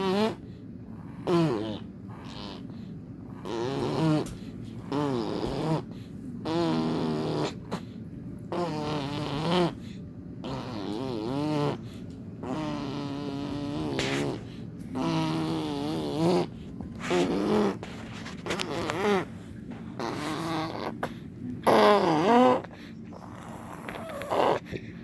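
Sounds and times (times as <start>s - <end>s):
person making arm fart noises: 4.9s - 7.7s, 12.4s - 17.8s, 18.4s - 19.3s, 21.6s - 22.7s.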